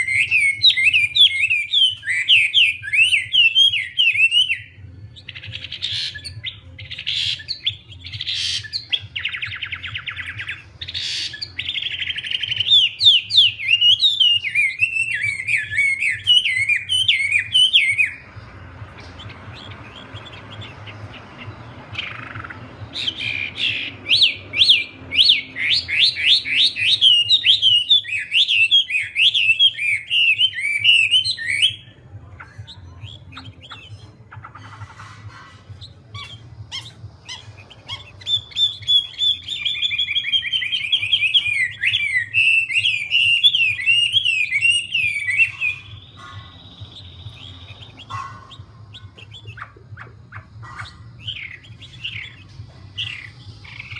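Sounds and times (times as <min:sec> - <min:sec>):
songbird singing: 0:00.0 - 0:53.9.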